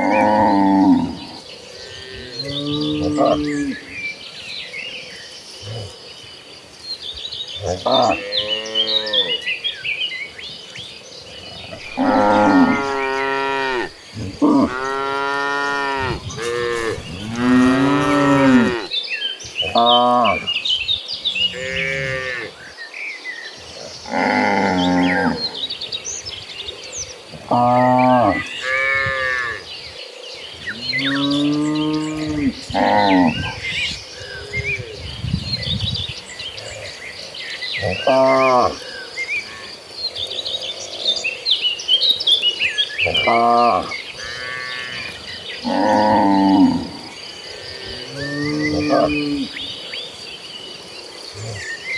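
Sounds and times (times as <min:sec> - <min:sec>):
small birds chirping: 0:00.0 - 0:51.9
cattle mooing: 0:11.8 - 0:18.9.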